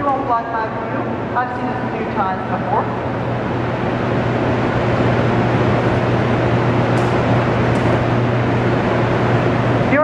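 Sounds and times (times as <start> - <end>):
hydroelectric generators humming: 0.0 - 10.0.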